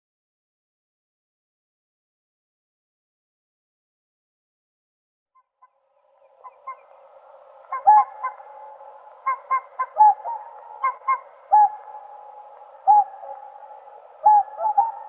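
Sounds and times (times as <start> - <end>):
swans bugling honks: 6.4 - 15.0.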